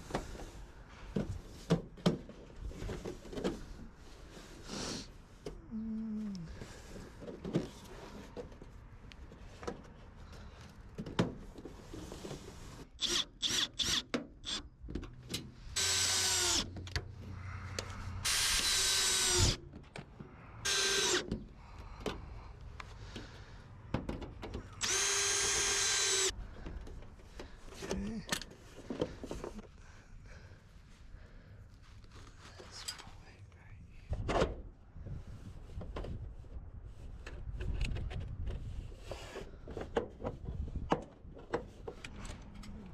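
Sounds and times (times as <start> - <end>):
power drill driving screws: 13.0 - 14.6, 15.8 - 16.8, 18.2 - 19.6, 20.6 - 21.3, 24.8 - 26.3.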